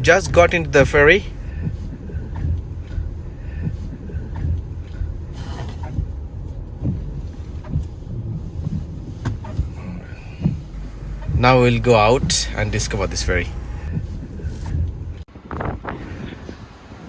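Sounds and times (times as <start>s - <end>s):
ship engines rumbling: 0.0s - 1.6s, 8.1s - 14.7s
clunks and knocks: 8.6s - 14.0s.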